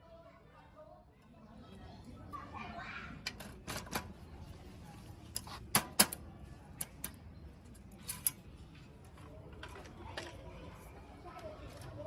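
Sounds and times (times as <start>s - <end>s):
clicks and knocks on bicycle parts: 3.2s - 4.2s, 5.3s - 6.2s.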